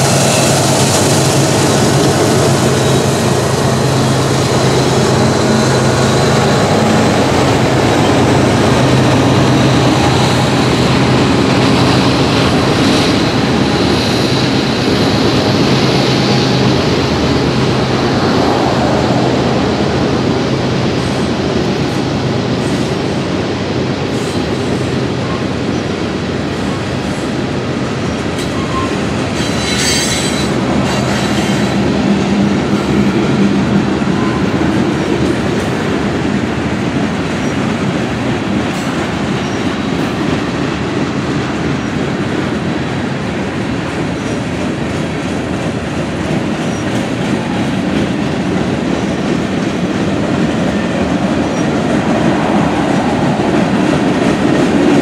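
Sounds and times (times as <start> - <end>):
freight train wheels on rails: 0.0 - 55.0
high wheel squeal: 28.4 - 31.9.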